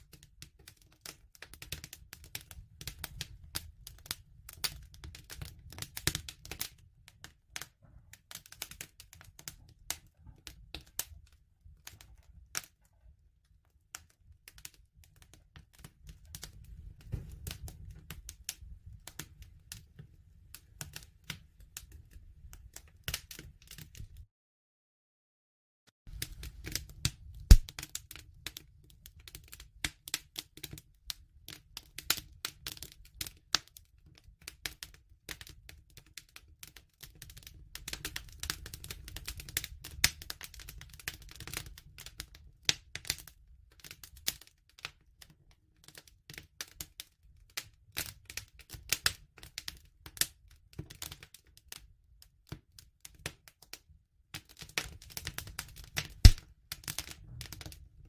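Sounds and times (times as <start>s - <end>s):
low rumble of flames: 0.0s - 24.2s, 26.1s - 30.2s, 55.1s - 58.0s
wood fire crackling: 0.0s - 24.2s, 26.1s - 53.5s, 54.3s - 58.0s.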